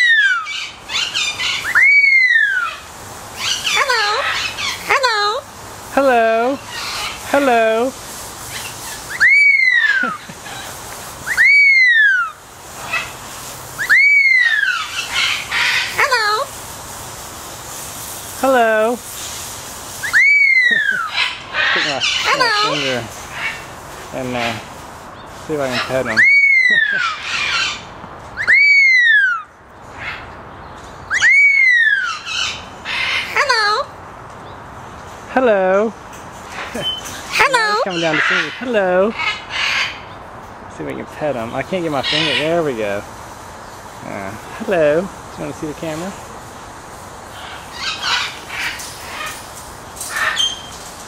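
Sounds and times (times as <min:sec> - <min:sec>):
parrot whistling: 0:00.0 - 0:02.8, 0:08.6 - 0:10.2, 0:11.2 - 0:12.4, 0:13.8 - 0:16.4, 0:20.0 - 0:21.1, 0:28.4 - 0:29.5, 0:31.1 - 0:32.5.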